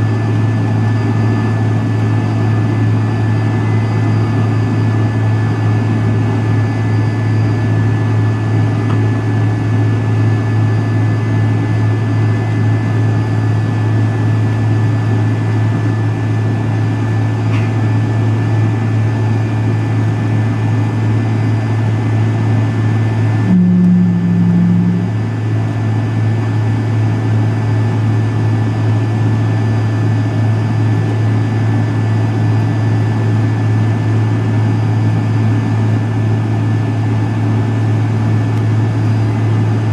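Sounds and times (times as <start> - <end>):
jet engine drone in cabin: 0.0 - 39.9
brief low hum: 23.4 - 25.8.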